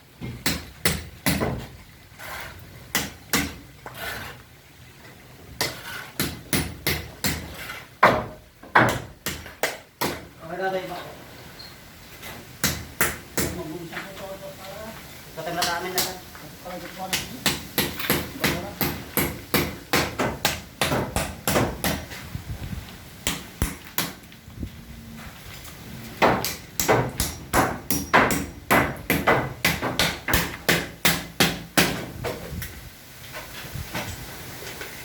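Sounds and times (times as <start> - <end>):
hammer striking timber: 0.3 - 1.6, 2.9 - 3.6, 5.6 - 10.3, 12.6 - 13.6, 17.1 - 22.1, 23.2 - 24.2, 26.2 - 32.2.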